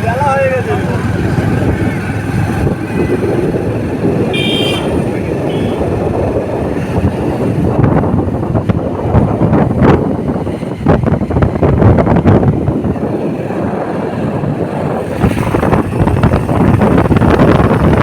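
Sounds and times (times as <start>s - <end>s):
motorcycle engine and road noise: 0.0s - 18.0s
wind buffeting microphone: 0.0s - 18.0s
horn toots: 4.3s - 5.9s.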